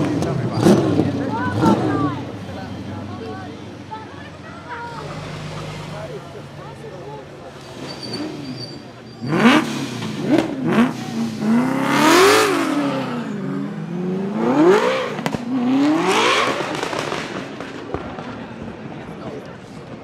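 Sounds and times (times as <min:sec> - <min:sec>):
car engine revving hard: 0:00.0 - 0:02.4, 0:07.6 - 0:17.7.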